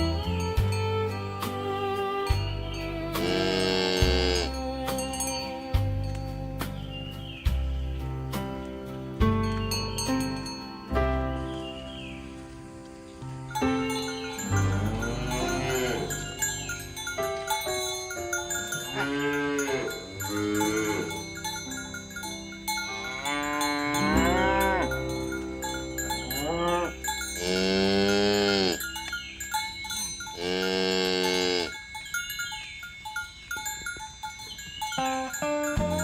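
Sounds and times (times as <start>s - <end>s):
bells ringing lightly: 0.0s - 6.6s, 9.2s - 11.4s, 13.4s - 36.0s
cows mooing: 3.0s - 4.6s, 14.4s - 16.6s, 18.6s - 21.3s, 22.9s - 25.2s, 26.2s - 29.0s, 30.4s - 31.8s.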